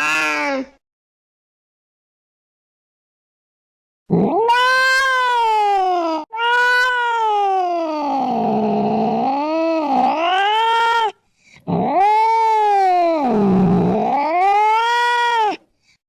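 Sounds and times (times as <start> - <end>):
cat yowling: 0.0 - 0.7, 4.1 - 15.6.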